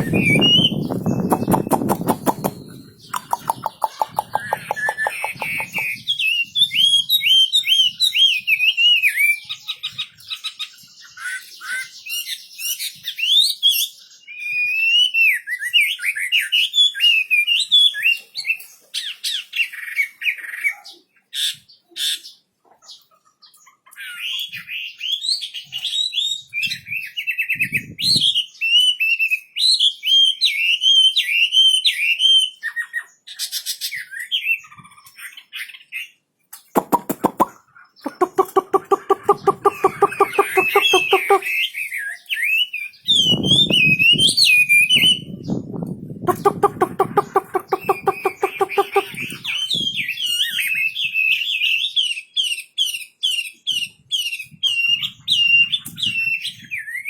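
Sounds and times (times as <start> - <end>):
songbird warbling: 0.0 - 6.0, 36.6 - 41.7, 46.3 - 49.7
sharp clicks: 1.3 - 5.8, 36.6 - 37.5.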